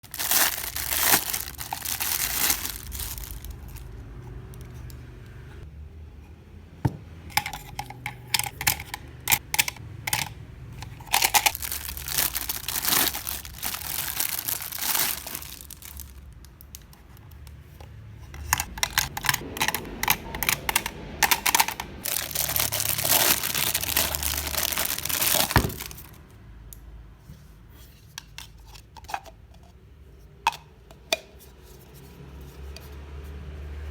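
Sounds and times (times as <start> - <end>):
packaging crackling and tearing: 0.0 - 3.9, 11.0 - 16.7, 18.4 - 26.2.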